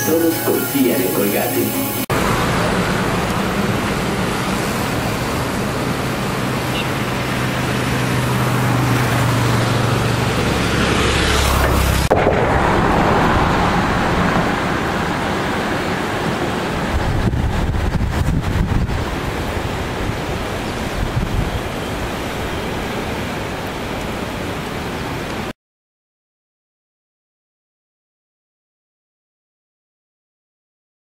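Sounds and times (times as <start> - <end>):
motorcycle engine hum: 2.1 - 21.5
wind rushing over microphone: 2.2 - 25.4.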